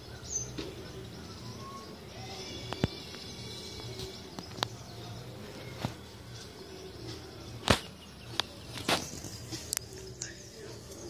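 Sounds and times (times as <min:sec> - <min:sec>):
faint bird chirping: 0:00.0 - 0:11.0.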